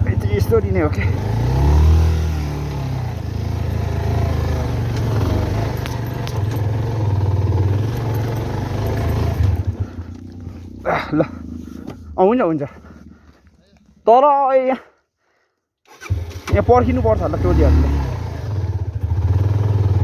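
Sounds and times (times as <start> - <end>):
motorcycle engine revving hard: 0.0 - 11.9, 16.0 - 20.0.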